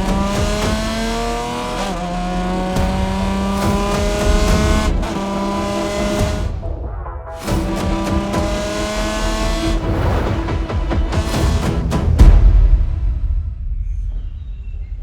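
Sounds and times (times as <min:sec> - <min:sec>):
car engine accelerating: 0:00.0 - 0:06.6, 0:07.4 - 0:12.0.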